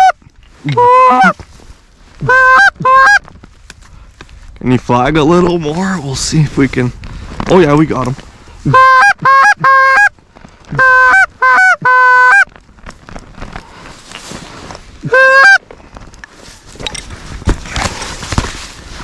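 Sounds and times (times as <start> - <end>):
goose honks: 0.0 - 1.4, 2.2 - 3.2, 8.7 - 10.1, 10.7 - 12.5, 15.1 - 15.6.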